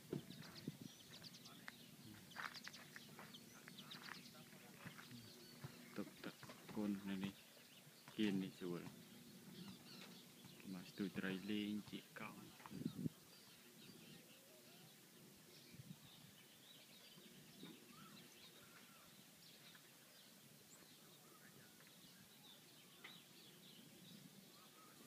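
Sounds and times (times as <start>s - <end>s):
bird chirps and calls: 0.0s - 25.0s
low steady background hum: 0.2s - 25.0s.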